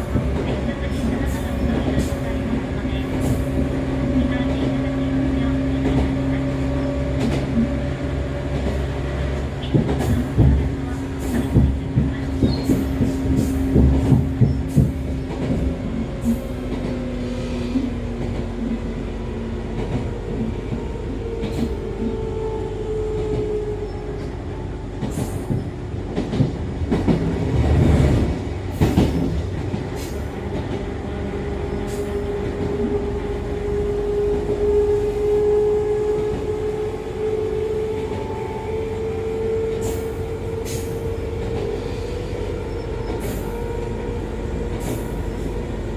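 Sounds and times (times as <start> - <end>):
train rumble: 0.0 - 45.9
rail-joint clicks: 7.0 - 7.9, 8.5 - 18.9, 19.7 - 22.3, 23.1 - 30.9, 39.4 - 45.9.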